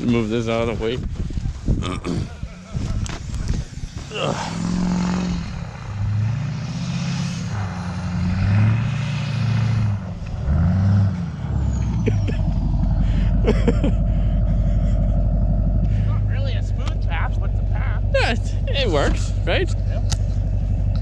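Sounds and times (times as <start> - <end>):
truck engine revving: 1.9 - 21.0.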